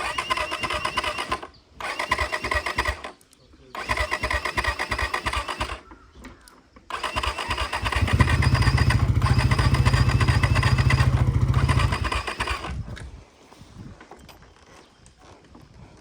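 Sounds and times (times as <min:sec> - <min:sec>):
motorcycle electric starter cranking: 0:00.0 - 0:06.0, 0:06.9 - 0:12.9.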